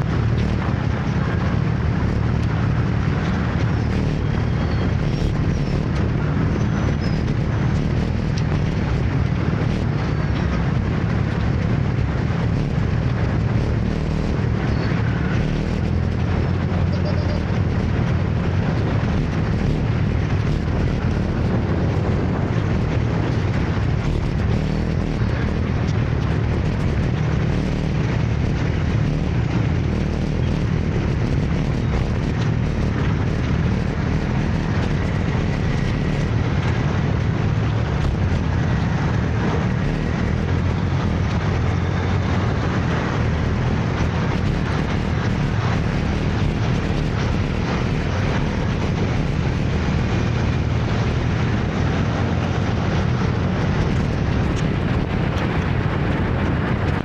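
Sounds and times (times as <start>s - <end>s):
motor scooter engine drone: 0.0s - 57.0s.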